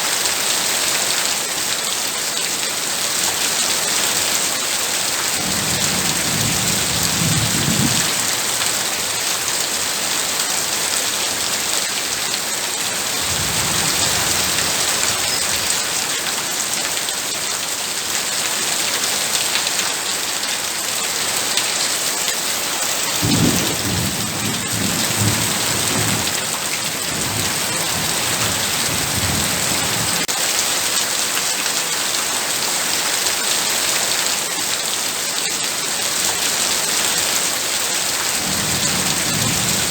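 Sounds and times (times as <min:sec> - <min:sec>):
heavy rain hissing: 0:03.8 - 0:31.1, 0:34.4 - 0:39.9
thunder rumbling: 0:05.4 - 0:08.4, 0:13.2 - 0:15.8, 0:23.2 - 0:30.3, 0:38.4 - 0:39.9.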